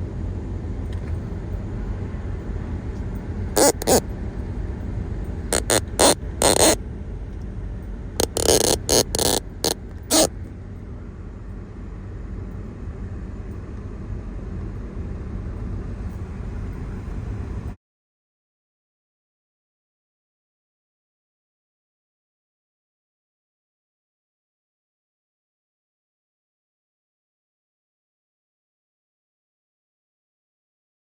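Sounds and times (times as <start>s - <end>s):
vehicle engine rumbling: 0.1s - 17.7s
short sharp noise bursts: 3.6s - 4.0s, 5.5s - 6.8s, 8.2s - 10.3s.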